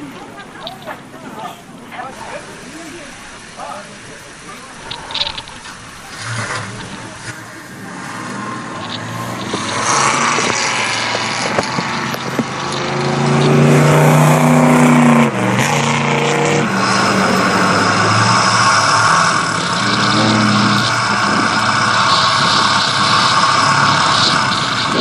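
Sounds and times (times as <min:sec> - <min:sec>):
motor engine revving: 0:02.8 - 0:25.0
rushing hiss: 0:16.6 - 0:25.0.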